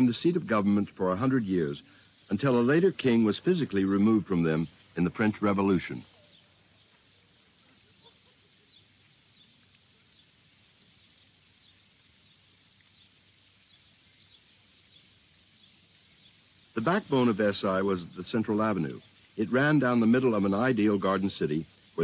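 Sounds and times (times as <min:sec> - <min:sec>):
faint bird chirps: 0:00.9 - 0:22.0.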